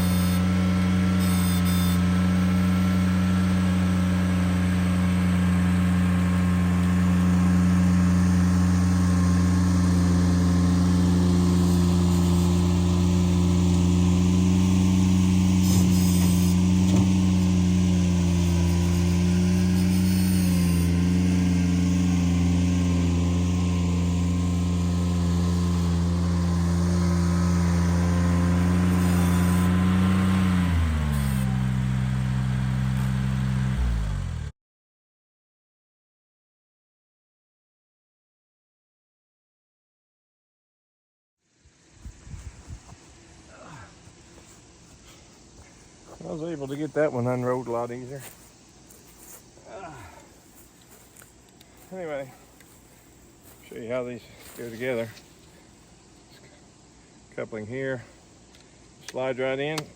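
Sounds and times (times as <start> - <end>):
tractor engine running: 0.0 - 34.5.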